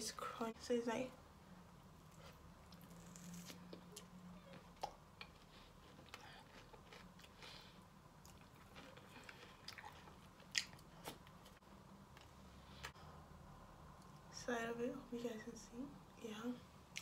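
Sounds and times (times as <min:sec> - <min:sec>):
crunchy biting and chewing: 0:02.1 - 0:11.6.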